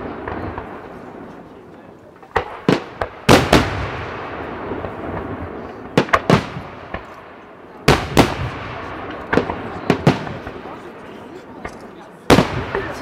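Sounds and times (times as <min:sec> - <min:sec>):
fireworks bursting: 0:00.0 - 0:13.0
rolling echo and crackle: 0:00.0 - 0:13.0.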